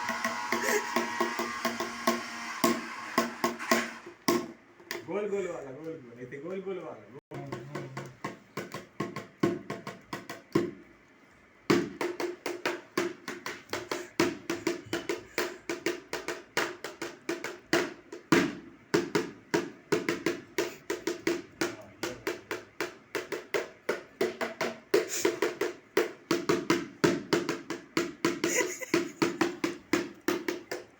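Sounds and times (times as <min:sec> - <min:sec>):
drum beaten in fast rhythm: 0:07.3 - 0:10.8.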